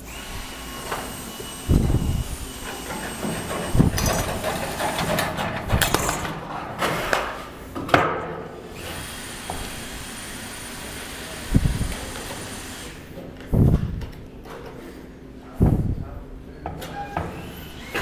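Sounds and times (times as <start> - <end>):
construction tools knocking and clattering: 2.6 - 8.4.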